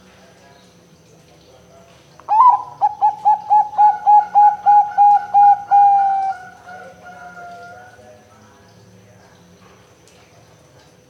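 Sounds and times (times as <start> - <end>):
dove cooing: 2.3 - 8.0.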